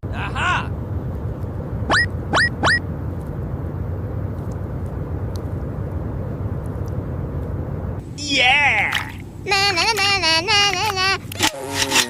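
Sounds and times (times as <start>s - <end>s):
tractor engine rumbling: 0.0s - 12.0s
short rising squeaks: 1.8s - 2.9s.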